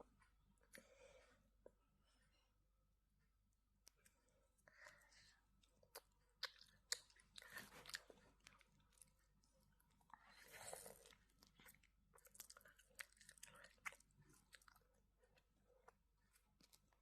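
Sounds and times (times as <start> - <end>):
faint chewing: 3.8 - 17.0.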